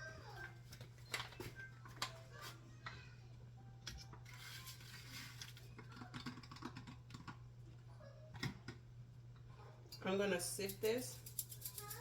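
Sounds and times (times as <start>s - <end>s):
low steady hum: 0.0s - 12.0s
kitchen utensils clicking: 10.6s - 12.0s.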